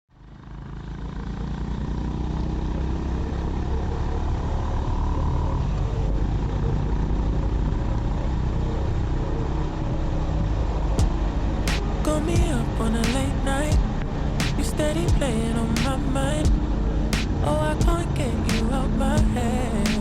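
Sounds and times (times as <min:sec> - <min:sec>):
motorcycle engine running: 0:00.1 - 0:09.0, 0:11.0 - 0:20.0.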